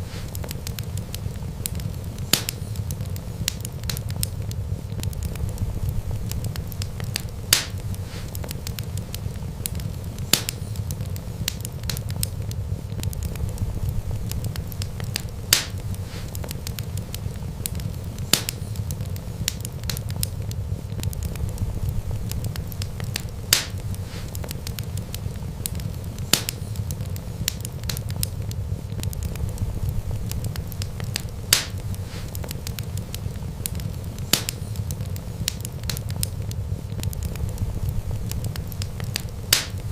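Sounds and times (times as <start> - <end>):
fire crackling pops: 0.0 - 39.9
wood fire rumbling: 0.0 - 39.9.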